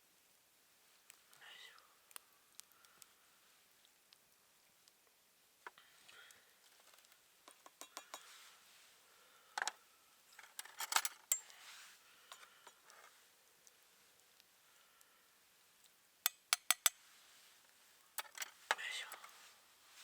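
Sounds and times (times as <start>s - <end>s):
camp cookware clinking: 7.5s - 8.3s.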